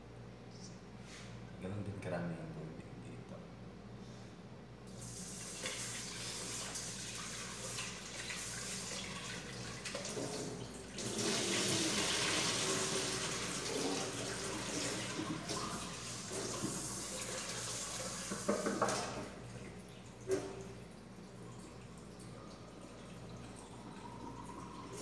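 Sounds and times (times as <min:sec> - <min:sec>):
tap water running into pot: 0:05.3 - 0:20.8
pot knocking against sink: 0:18.3 - 0:19.3.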